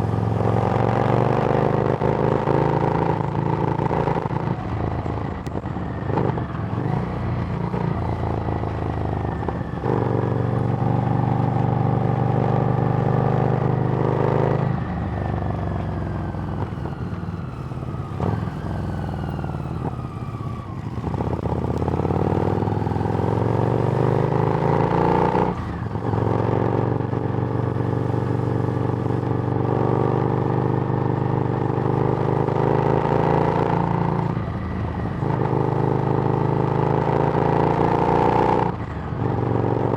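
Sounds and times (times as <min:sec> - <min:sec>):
motorcycle engine running: 0:17.5 - 0:39.9.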